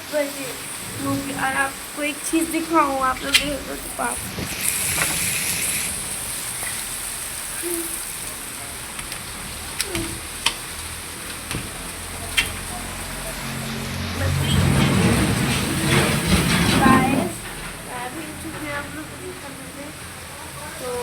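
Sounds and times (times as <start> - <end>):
heavy rain: 0.0 - 21.0
low rumble: 0.6 - 5.0.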